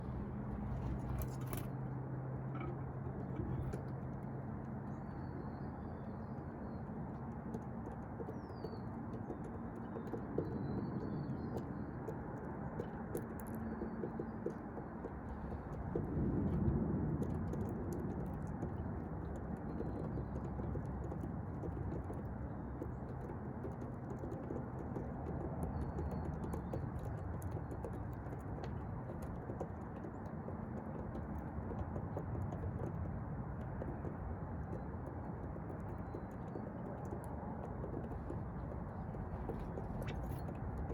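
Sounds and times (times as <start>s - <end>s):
steady background rumble: 0.0s - 7.0s, 14.6s - 40.9s.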